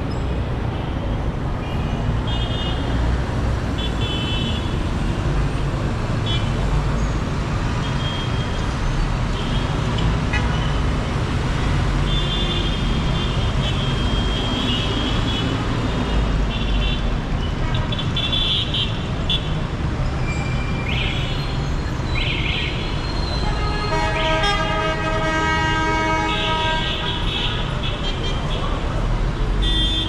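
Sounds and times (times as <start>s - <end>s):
traffic engines running: 0.0s - 30.0s
car horns tooting: 23.2s - 28.6s, 29.6s - 30.0s
long steady car horn: 23.5s - 27.2s.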